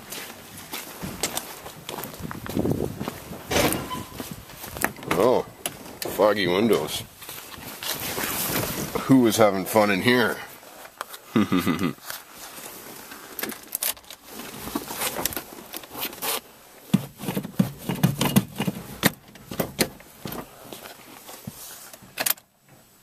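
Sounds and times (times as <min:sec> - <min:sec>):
rustling and scraping: 0:00.0 - 0:11.3, 0:11.9 - 0:23.0.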